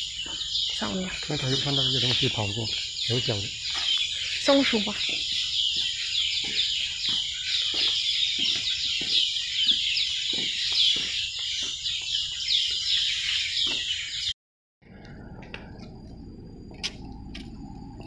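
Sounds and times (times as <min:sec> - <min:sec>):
cicadas chorus: 0:00.0 - 0:14.3
footsteps on boardwalk: 0:00.0 - 0:14.3.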